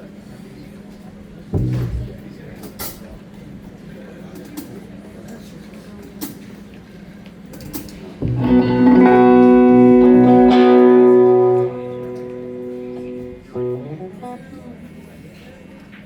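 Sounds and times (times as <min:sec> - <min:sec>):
electric guitar chord ringing: 0:01.6 - 0:02.4, 0:08.2 - 0:15.1
low hum: 0:01.6 - 0:02.4.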